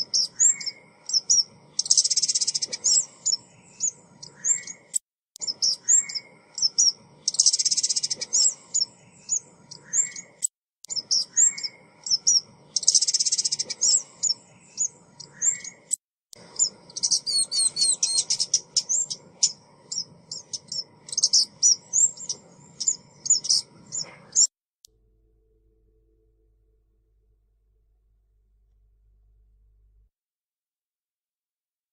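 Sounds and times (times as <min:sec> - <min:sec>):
bird chirping and trilling: 0:00.0 - 0:24.5.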